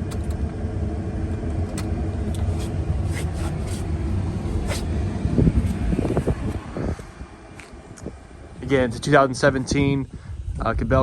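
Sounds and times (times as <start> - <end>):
excavator diesel engine humming: 0.0 - 10.0.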